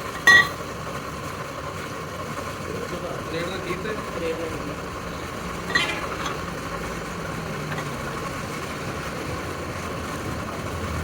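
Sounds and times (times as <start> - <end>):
machine motor humming: 2.6 - 11.0.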